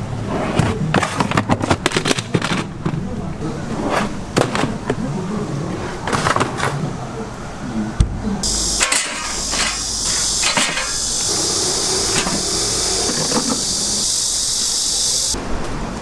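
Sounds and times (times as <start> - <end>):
high-pitched hiss: 8.4 - 15.4.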